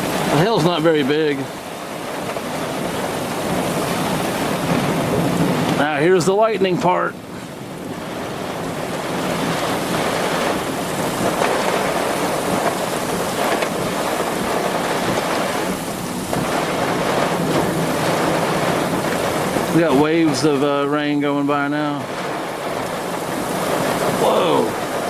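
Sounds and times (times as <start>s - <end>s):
heavy rain pouring: 0.0s - 25.0s.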